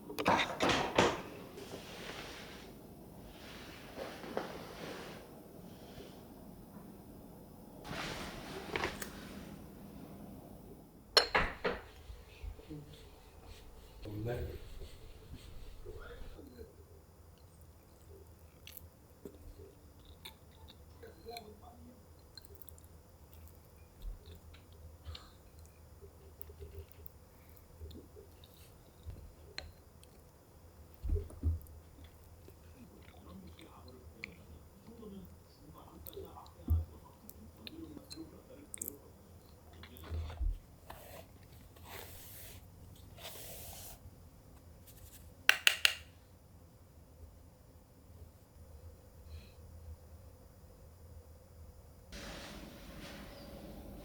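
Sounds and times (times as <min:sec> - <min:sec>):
soft hissing brushing sounds: 0:01.3 - 0:06.7, 0:07.8 - 0:10.5, 0:11.9 - 0:16.4, 0:40.8 - 0:44.1, 0:52.2 - 0:54.0
quiet chewing: 0:17.3 - 0:40.4.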